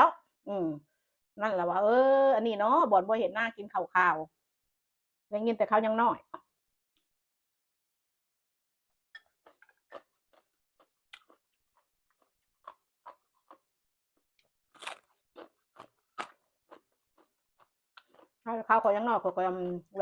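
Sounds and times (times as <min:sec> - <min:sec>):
person chewing crunchy food: 0:09.2 - 0:13.8, 0:14.4 - 0:18.5.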